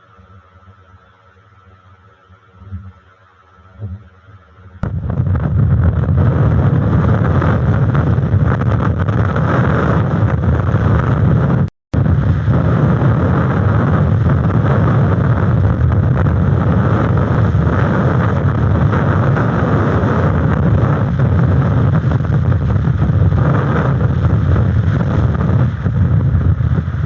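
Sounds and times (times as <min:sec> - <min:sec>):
gusting wind buffeting microphone: 0:04.8 - 0:27.0.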